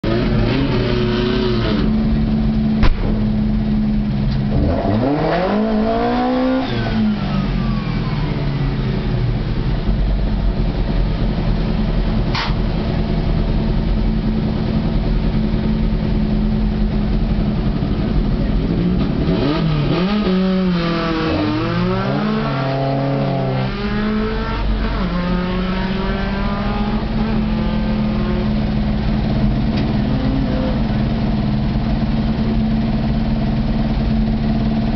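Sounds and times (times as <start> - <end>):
car engine idling and revving: 0.0 - 34.9
sharp click: 2.8 - 3.2, 12.3 - 12.6.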